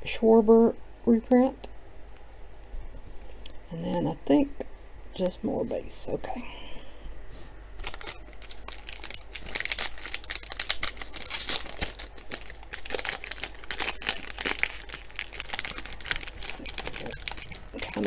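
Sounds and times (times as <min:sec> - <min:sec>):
foil wrapper crinkling and tearing: 0:07.8 - 0:18.0.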